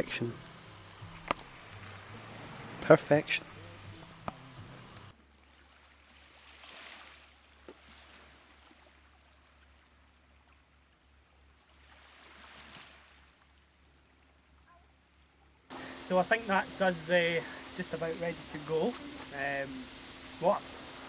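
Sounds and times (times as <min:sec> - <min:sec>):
small waves washing onto beach: 0:05.4 - 0:09.6, 0:15.7 - 0:21.0.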